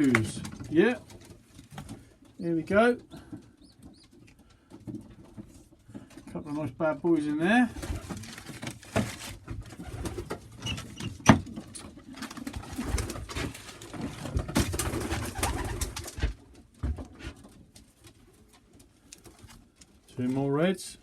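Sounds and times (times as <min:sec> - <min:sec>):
rustles: 0:07.7 - 0:11.0.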